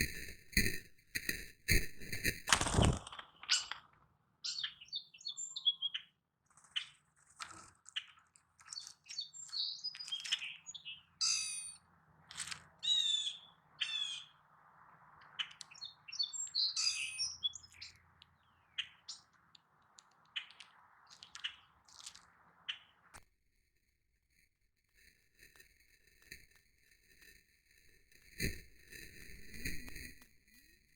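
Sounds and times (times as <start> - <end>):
small songbirds chirping: 3.1 - 23.1.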